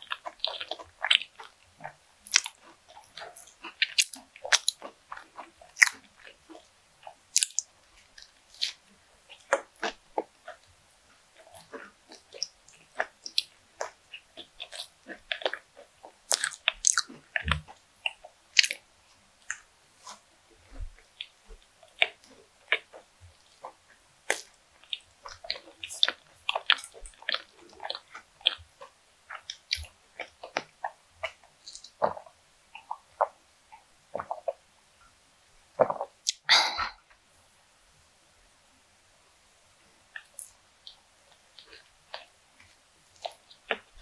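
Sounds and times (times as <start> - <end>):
wet chewing with crisp crackles: 0.0 - 37.2, 40.0 - 44.0
sip from a glass: 36.3 - 37.0.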